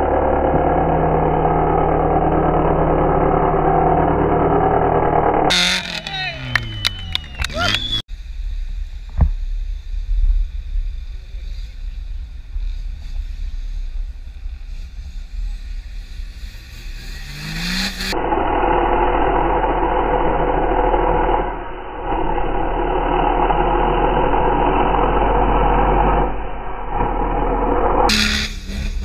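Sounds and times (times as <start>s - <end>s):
off-road vehicle engine revving: 0.0s - 8.1s, 10.6s - 29.0s
slowed-down deep engine sound: 0.0s - 29.0s.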